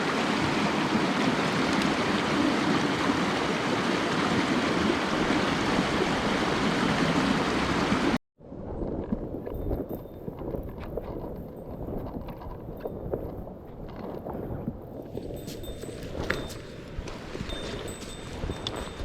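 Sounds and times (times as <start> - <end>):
stream water rushing over rocks: 0.0 - 8.2.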